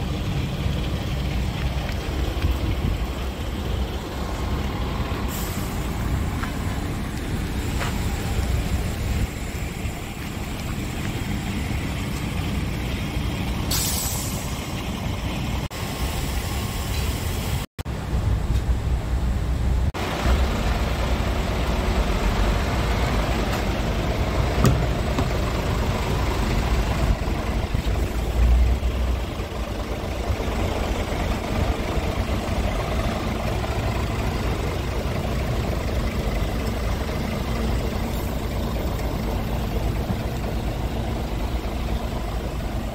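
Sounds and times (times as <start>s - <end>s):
diesel truck engine rumbling: 0.0s - 42.9s
air hiss: 5.2s - 6.2s, 13.7s - 14.7s.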